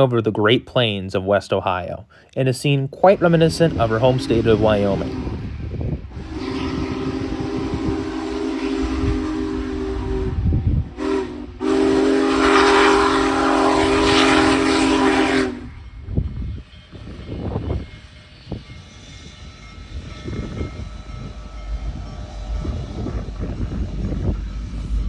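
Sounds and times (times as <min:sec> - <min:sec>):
passing train rumble: 0:03.0 - 0:25.0
steam whistle blasts: 0:03.1 - 0:16.0.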